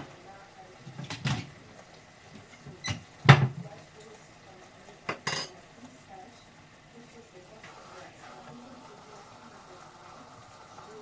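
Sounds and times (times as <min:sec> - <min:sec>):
pots and utensils clattering: 0:00.8 - 0:01.6, 0:02.3 - 0:04.1, 0:05.0 - 0:05.6.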